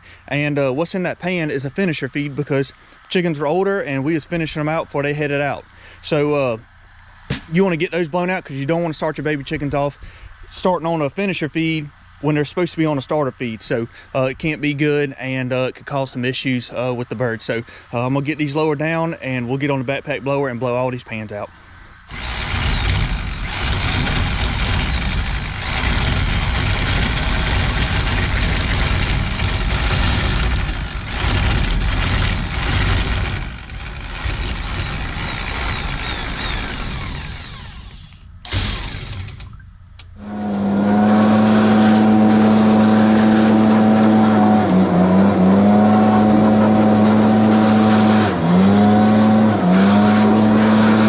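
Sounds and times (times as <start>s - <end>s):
leaf blower blasting: 22.1s - 39.5s, 40.2s - 51.0s
leaf blower engine whine: 22.1s - 51.0s.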